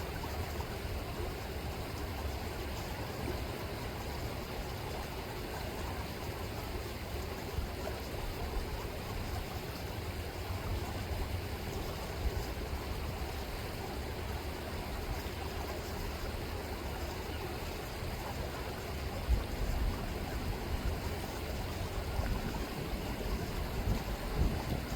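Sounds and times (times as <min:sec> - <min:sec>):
river water rushing: 0:00.1 - 0:24.9
wind buffeting microphone: 0:18.9 - 0:24.9.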